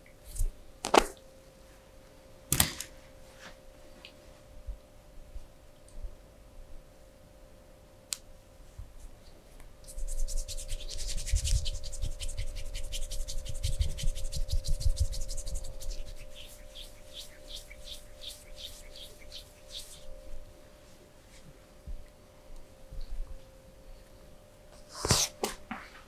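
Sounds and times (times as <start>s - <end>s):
faint steady hum: 0.0s - 26.0s
rapid scratching strokes: 9.8s - 20.4s.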